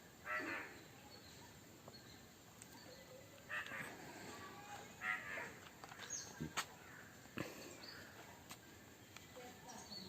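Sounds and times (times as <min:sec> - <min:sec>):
faint bird calls: 0:00.2 - 0:08.3.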